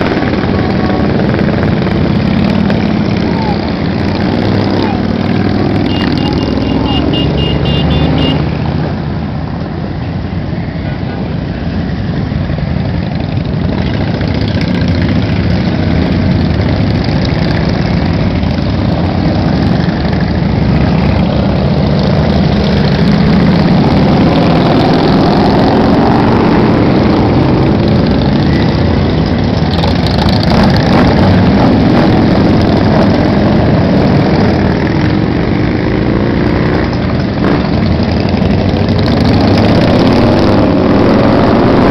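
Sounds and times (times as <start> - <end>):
motorcycle engines revving: 0.0 - 41.9
motorcycle engines running: 0.0 - 41.9.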